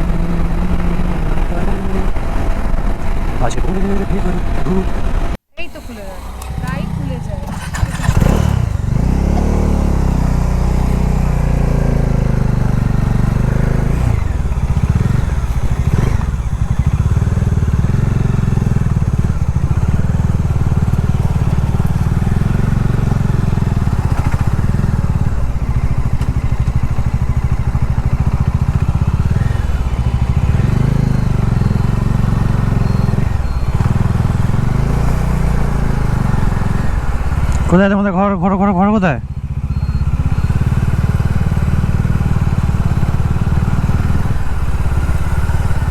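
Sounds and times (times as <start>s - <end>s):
motorcycle engine accelerating: 0.0s - 45.9s.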